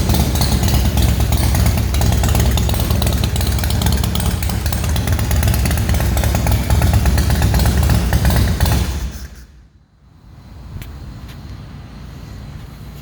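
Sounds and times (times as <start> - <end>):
motorcycle engine running loudly: 0.0 - 9.4.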